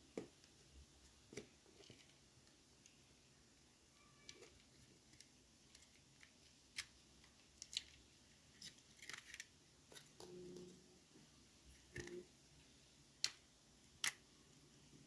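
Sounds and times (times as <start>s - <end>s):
plastic parts clicking: 4.2s - 8.0s, 8.6s - 10.3s.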